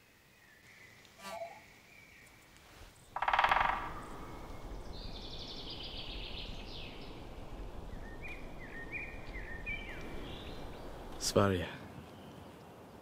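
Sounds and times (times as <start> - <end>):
thin bird calls and chirps: 0.0 - 11.4
outdoor background noise: 0.0 - 13.0
loud buzzy bird call: 3.2 - 5.5.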